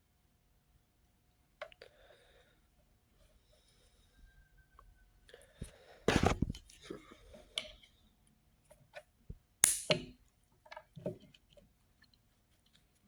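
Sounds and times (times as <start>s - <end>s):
sharp clicks and crunches: 6.1s - 6.6s
rustling: 6.1s - 6.7s.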